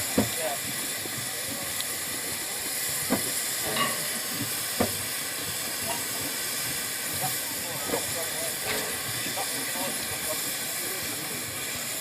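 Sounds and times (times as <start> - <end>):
hiss of escaping steam: 0.0 - 12.0.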